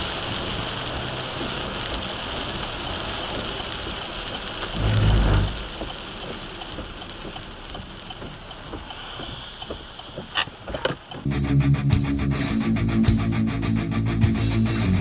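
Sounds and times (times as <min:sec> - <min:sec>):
vehicle wind and road noise: 0:00.0 - 0:11.3
heavy low rumble: 0:04.7 - 0:06.1
electric guitar music: 0:11.2 - 0:15.0.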